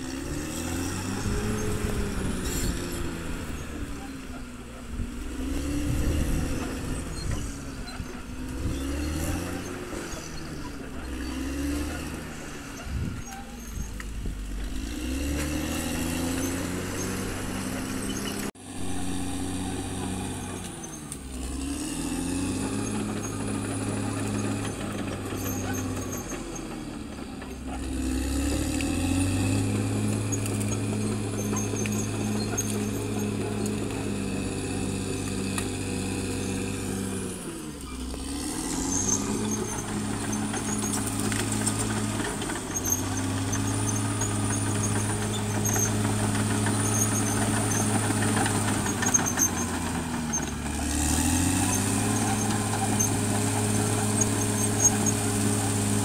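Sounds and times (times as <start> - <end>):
bulldozer diesel engine running: 0.0 - 56.0
faint high squeak: 6.6 - 14.1.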